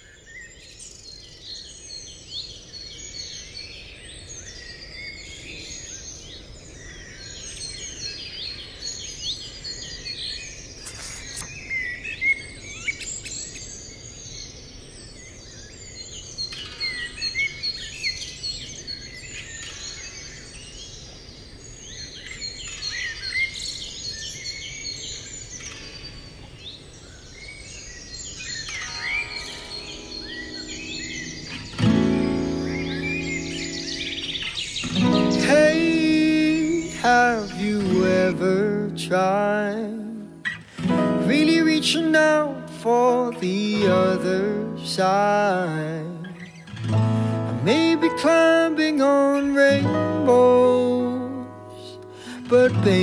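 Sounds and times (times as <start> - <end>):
birds chirping and singing: 0.0 - 53.0
steady background hiss: 0.0 - 53.0.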